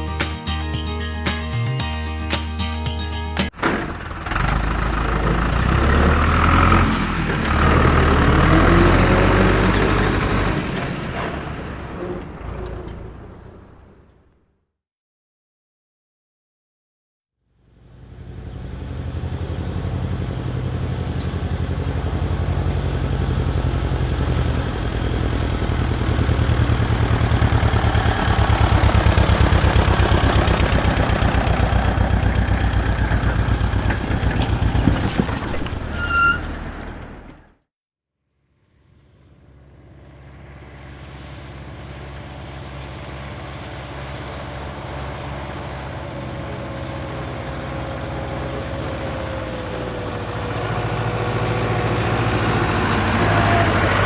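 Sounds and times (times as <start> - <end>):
heavy truck engine running: 0.0 - 14.4, 17.6 - 37.6, 38.9 - 54.0
engine idling: 17.8 - 35.2.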